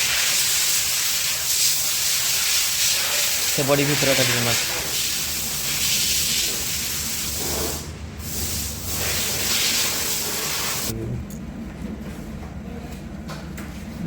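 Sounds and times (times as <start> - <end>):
hissing aerosol spray: 0.0 - 10.9.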